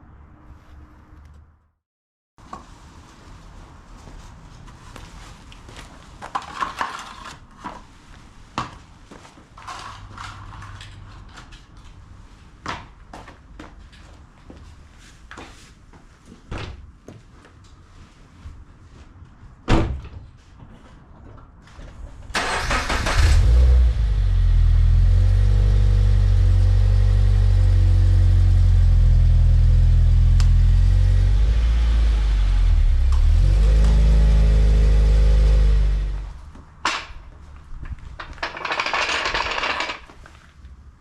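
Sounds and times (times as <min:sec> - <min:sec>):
car engine starting and idling: 0:22.3 - 0:36.3.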